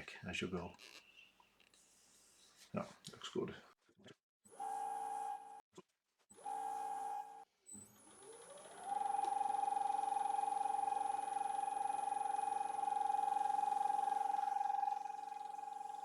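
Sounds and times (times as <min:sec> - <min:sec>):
wood lathe motor whining: 0:07.9 - 0:16.0.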